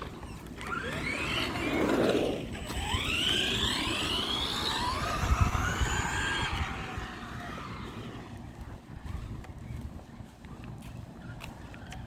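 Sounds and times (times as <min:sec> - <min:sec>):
electric motor whining: 0:00.0 - 0:08.4
tyre and drivetrain noise: 0:00.0 - 0:12.0.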